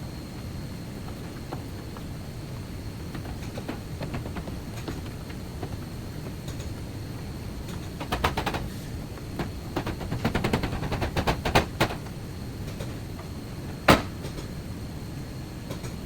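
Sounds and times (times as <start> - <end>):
low background hum: 0.0 - 16.0
sharp knocks: 13.9 - 14.4.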